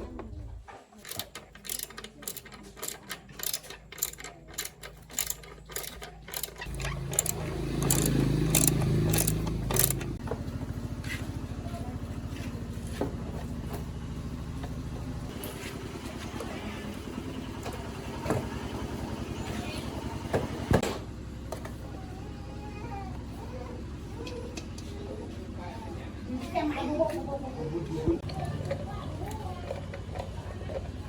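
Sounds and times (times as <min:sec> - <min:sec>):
motorbike engine starting and idling: 0:00.0 - 0:31.0
sharp mechanical clicks: 0:01.0 - 0:10.2.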